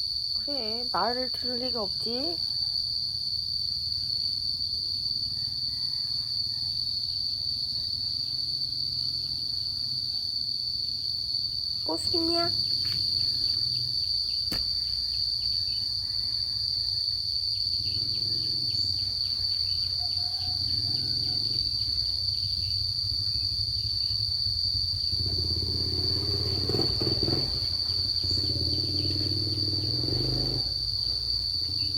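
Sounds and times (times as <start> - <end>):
insects droning: 0.0 - 31.9.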